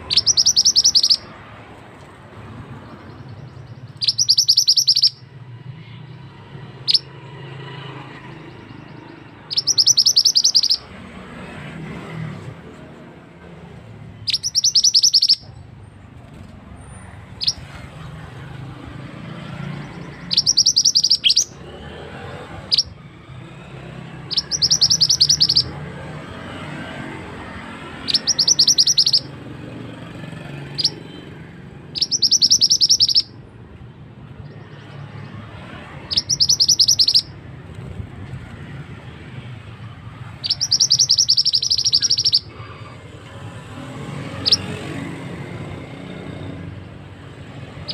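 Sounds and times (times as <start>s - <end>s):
bird call high trill: 0.0s - 1.3s, 3.1s - 5.3s, 8.4s - 10.9s, 14.2s - 15.6s, 17.4s - 17.7s, 19.6s - 21.6s, 22.7s - 23.0s, 24.3s - 25.8s, 28.0s - 29.4s, 30.6s - 31.2s, 31.9s - 33.4s, 36.0s - 37.4s, 40.4s - 42.8s, 44.4s - 44.8s.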